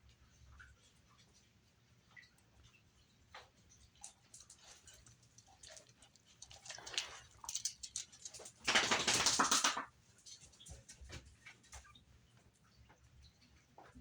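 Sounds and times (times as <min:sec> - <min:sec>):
puppies stirring: 0:00.8 - 0:12.0.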